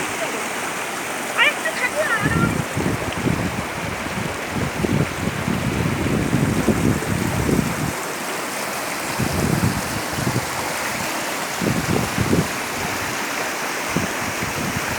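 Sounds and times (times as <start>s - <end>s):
water rushing over rocks: 0.0s - 14.9s.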